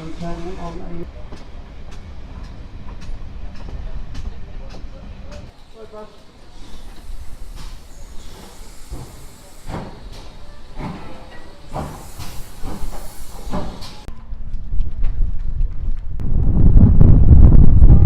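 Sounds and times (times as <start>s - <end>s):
steam hissing: 0.0s - 1.1s, 5.4s - 14.1s
steam locomotive chuffing: 0.0s - 14.1s.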